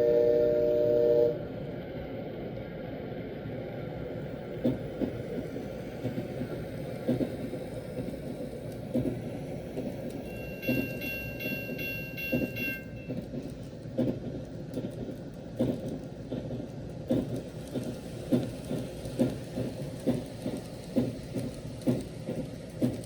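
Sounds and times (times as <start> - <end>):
train running rumble: 0.0 - 23.0
rail-joint clicks: 4.4 - 23.0
rapid repeating ringing tone: 10.3 - 13.1.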